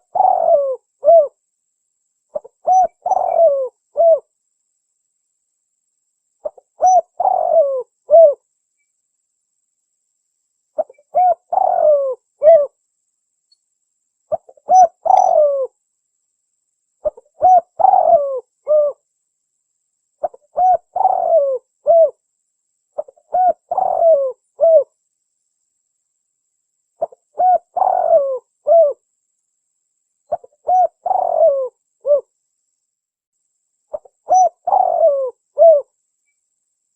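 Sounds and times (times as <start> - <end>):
dove cooing: 0.0 - 1.4, 2.3 - 4.3, 6.4 - 8.4, 10.8 - 12.8, 14.3 - 15.7, 17.0 - 19.0, 20.2 - 22.2, 23.0 - 24.9, 27.0 - 29.0, 30.3 - 32.3, 33.9 - 35.9.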